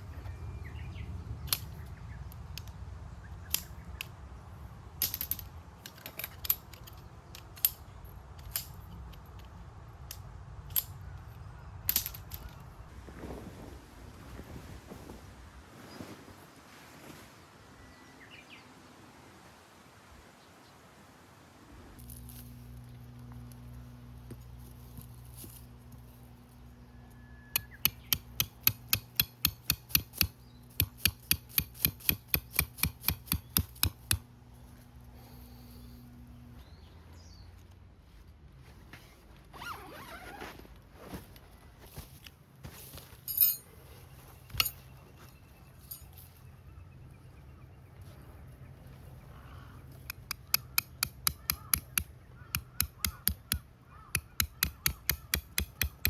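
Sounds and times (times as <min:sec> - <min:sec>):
steady low hum: 0:30.3 - 0:36.6.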